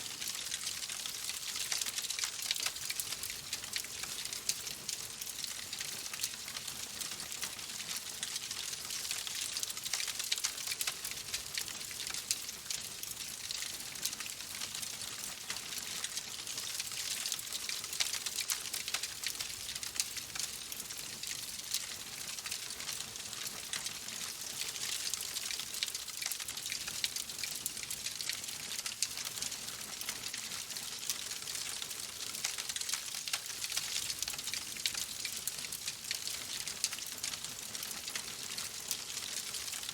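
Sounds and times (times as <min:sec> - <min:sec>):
wood fire crackling: 0:09.6 - 0:12.5.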